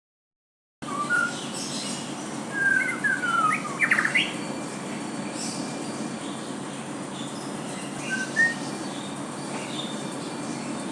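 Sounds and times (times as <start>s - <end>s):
bird singing whistled phrases: 0.8s - 1.8s, 2.5s - 4.4s, 8.0s - 8.8s
steady background hiss: 0.8s - 10.9s.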